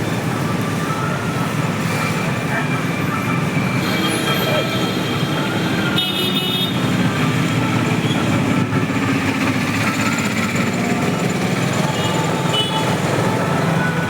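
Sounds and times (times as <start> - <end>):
vehicle rumble: 6.8 - 14.0.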